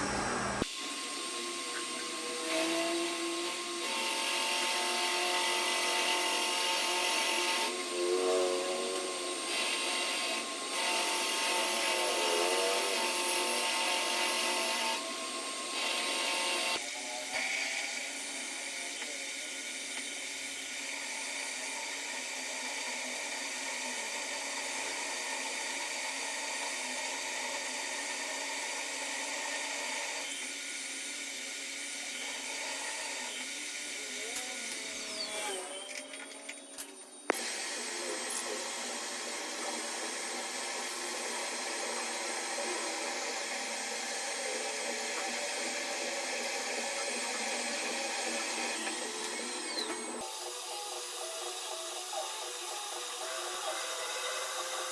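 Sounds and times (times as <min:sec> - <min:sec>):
power tool running: 0:00.0 - 0:54.9.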